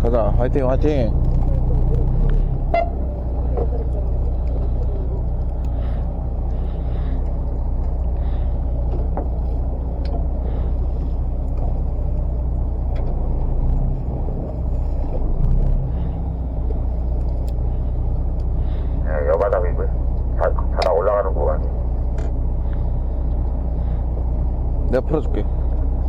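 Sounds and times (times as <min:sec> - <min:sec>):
boat engine drone: 0:00.0 - 0:26.0
faint clicks and knocks: 0:01.2 - 0:13.5.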